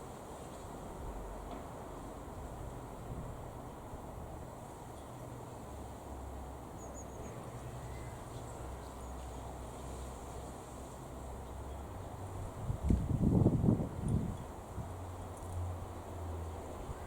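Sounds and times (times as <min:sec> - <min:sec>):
faint bird chirps: 0:06.8 - 0:09.3.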